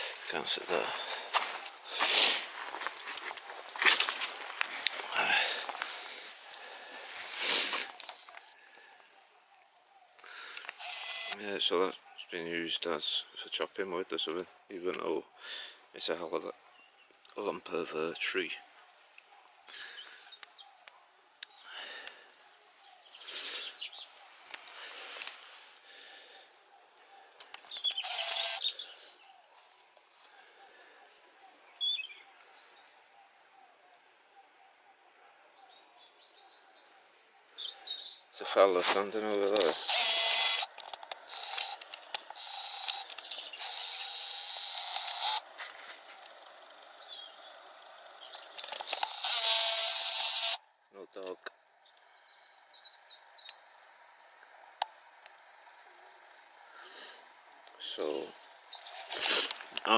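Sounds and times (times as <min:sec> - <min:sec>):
outdoor background noise: 0:00.0 - 0:59.9
faint bird calls: 0:05.1 - 0:13.4
camera zoom motor whirring: 0:10.7 - 0:11.4, 0:27.8 - 0:28.6, 0:39.4 - 0:46.6, 0:48.4 - 0:50.6.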